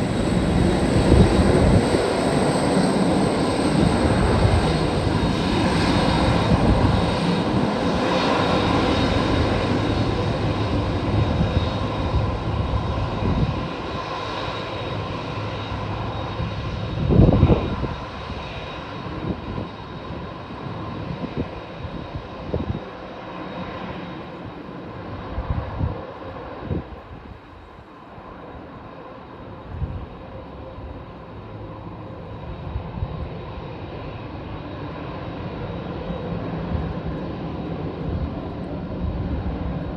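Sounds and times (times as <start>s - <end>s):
wind buffeting microphone: 0.0s - 14.1s, 15.8s - 22.9s, 24.4s - 27.7s, 29.6s - 31.1s
jet engines roaring: 0.0s - 39.9s.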